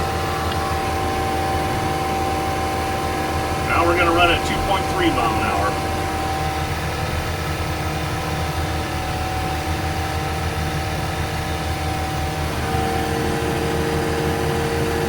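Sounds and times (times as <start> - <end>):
steady tone: 3.6 - 6.3.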